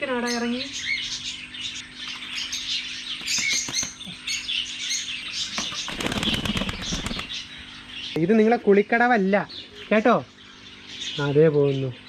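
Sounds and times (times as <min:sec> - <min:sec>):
small birds chirping: 0:00.0 - 0:12.0
wings flapping: 0:03.1 - 0:04.5, 0:05.4 - 0:07.5
bird splashing in water: 0:05.5 - 0:07.4.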